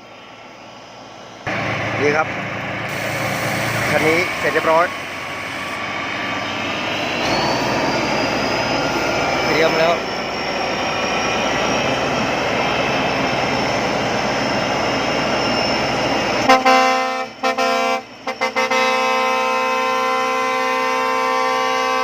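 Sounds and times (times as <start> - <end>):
harvester engine running: 0.1 - 17.0
air horn toots and blast: 16.4 - 22.0.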